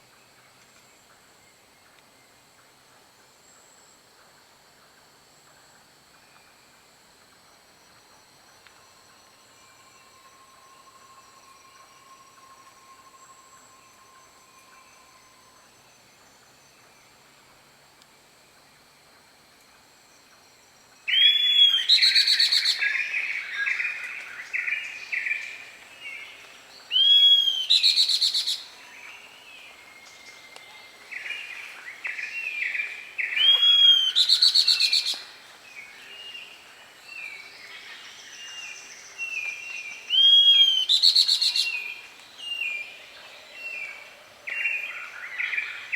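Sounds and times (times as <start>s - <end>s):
faint steady high tones: 5.0s - 45.9s
bird calling: 26.9s - 29.2s, 31.1s - 35.3s.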